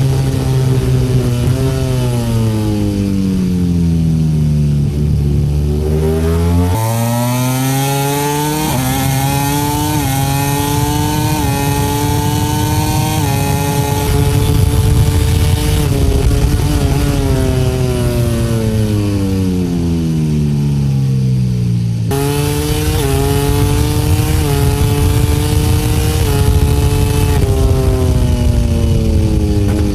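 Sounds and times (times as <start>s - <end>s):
motorcycle engine at high revs: 0.0s - 29.9s
wind rush: 8.7s - 20.2s, 22.1s - 29.9s.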